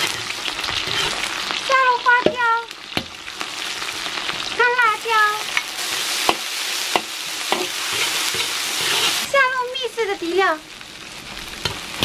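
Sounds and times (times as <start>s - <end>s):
oil sizzling in a wok: 0.0s - 12.0s.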